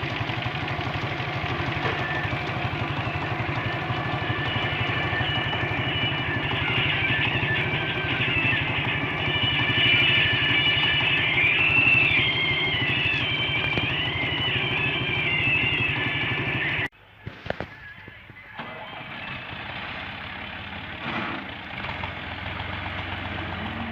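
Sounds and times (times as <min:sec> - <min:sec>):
tractor engine running: 0:00.0 - 0:23.9
high wavering tone: 0:01.6 - 0:16.9.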